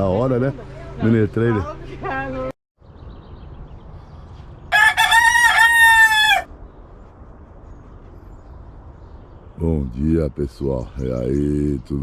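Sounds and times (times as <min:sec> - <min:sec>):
rooster crowing: 0:04.7 - 0:06.5.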